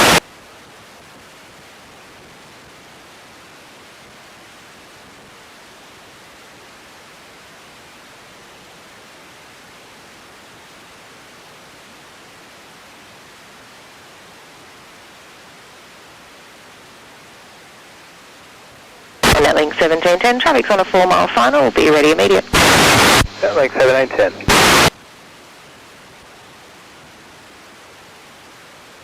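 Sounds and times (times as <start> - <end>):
radio static hiss: 0.0 - 0.3, 19.2 - 25.0.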